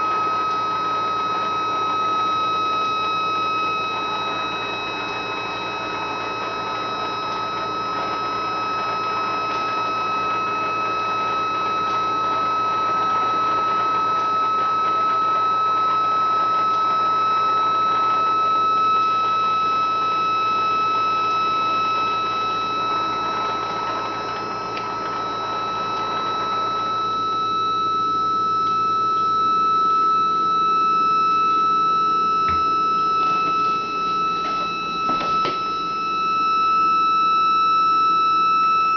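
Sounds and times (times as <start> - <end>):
engine singing a high tone: 0.0 - 38.9.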